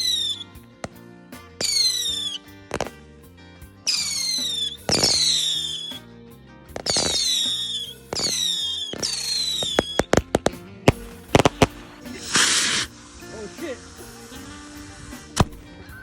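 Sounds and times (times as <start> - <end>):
firework whistles: 0.0 - 0.5, 1.6 - 2.5, 3.9 - 6.1, 6.8 - 10.2, 10.9 - 13.0
background music: 0.0 - 16.0
firework cracks and bangs: 3.9 - 5.8, 6.8 - 12.9, 15.4 - 15.8
firework hissing burst: 10.9 - 13.0.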